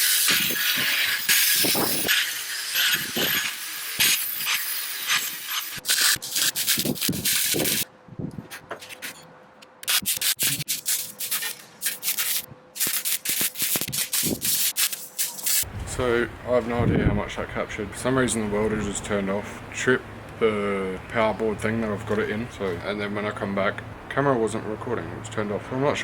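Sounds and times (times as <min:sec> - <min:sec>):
welding arc crackling: 0:00.0 - 0:07.9, 0:09.8 - 0:15.7.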